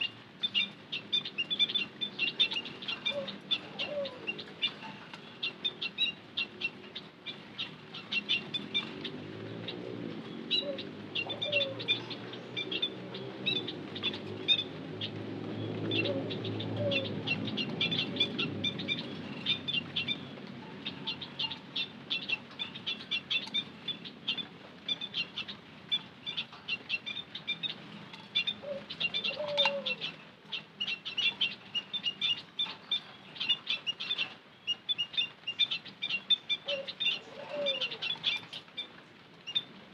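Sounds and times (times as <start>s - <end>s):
small birds twittering: 0.0s - 39.9s.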